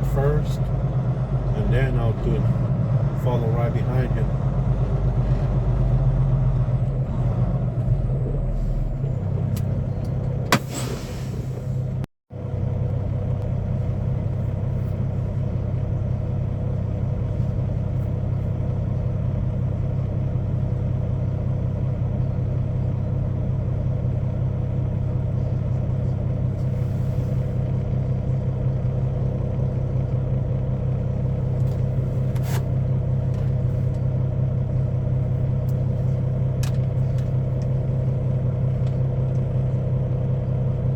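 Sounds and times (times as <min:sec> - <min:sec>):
diesel truck engine running: 0:00.0 - 0:40.9.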